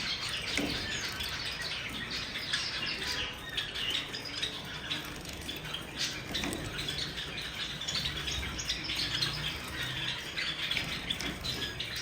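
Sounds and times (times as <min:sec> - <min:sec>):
sparrows chirping: 0:00.0 - 0:12.0.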